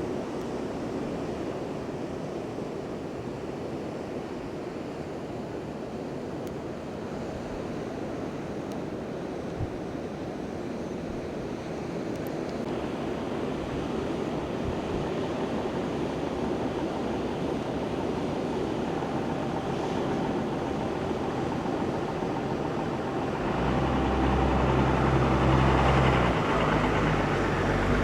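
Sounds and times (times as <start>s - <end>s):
ocean surf rushing: 12.7s - 28.0s
wind buffeting microphone: 13.5s - 28.0s
low steady drone: 15.4s - 28.0s.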